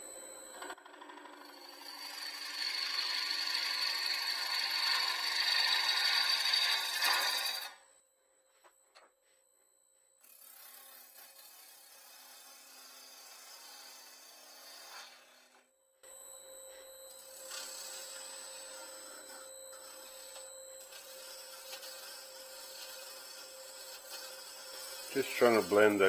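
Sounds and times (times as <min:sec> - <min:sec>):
lathe hum: 0:00.0 - 0:07.8, 0:10.2 - 0:26.0
gouge scraping wood on lathe: 0:01.5 - 0:07.8, 0:10.2 - 0:15.6, 0:17.1 - 0:26.0.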